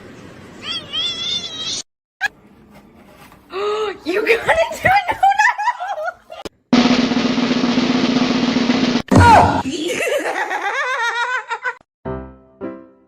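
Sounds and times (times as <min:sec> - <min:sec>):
cat meowing: 0:00.6 - 0:01.8
snare drum roll: 0:06.8 - 0:09.6.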